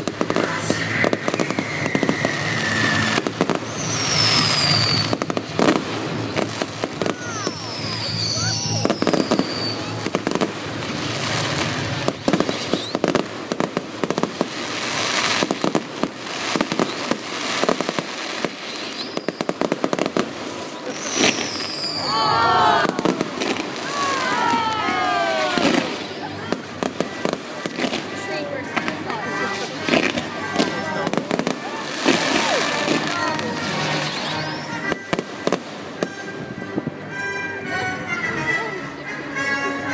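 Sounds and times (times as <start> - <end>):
fireworks bangs and crackling: 0.0 - 37.1
whistling firework shells: 0.3 - 5.7, 6.4 - 10.0, 12.3 - 13.2, 16.6 - 20.1, 20.8 - 26.4
background music: 22.1 - 39.9.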